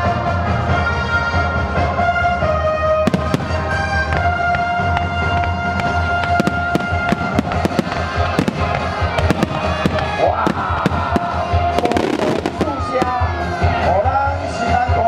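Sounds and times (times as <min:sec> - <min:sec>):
music with long held notes: 0:00.0 - 0:15.0
fireworks cracking and banging: 0:03.0 - 0:14.2.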